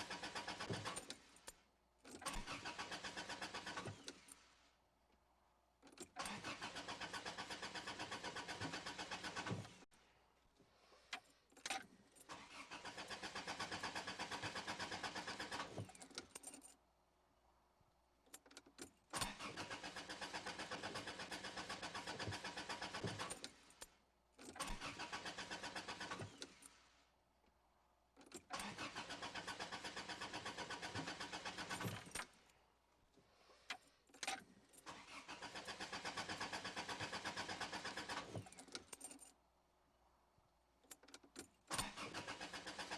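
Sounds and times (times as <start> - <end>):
car engine cranking: 0.0 - 1.1, 2.2 - 4.2, 6.2 - 9.8, 12.4 - 16.2, 19.2 - 23.5, 24.6 - 26.6, 28.4 - 32.2, 34.8 - 38.6, 41.7 - 42.9.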